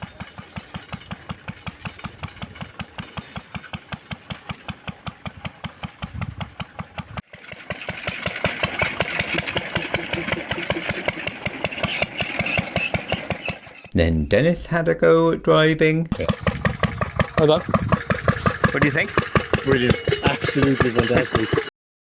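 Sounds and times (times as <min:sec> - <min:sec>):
single-cylinder engine running: 0:00.0 - 0:13.9, 0:16.1 - 0:21.7
hiss and rattle: 0:00.1 - 0:14.0, 0:16.2 - 0:21.7.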